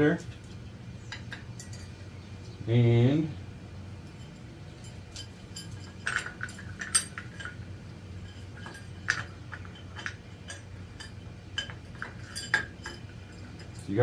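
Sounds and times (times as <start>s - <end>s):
steady low hum: 0.0s - 14.0s
metal chain clinks: 1.4s - 2.0s, 4.1s - 14.0s.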